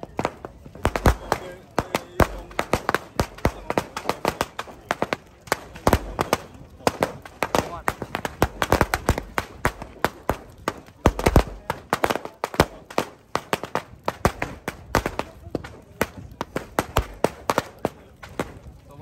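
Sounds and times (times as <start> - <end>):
firecrackers cracking: 0.0 - 19.0.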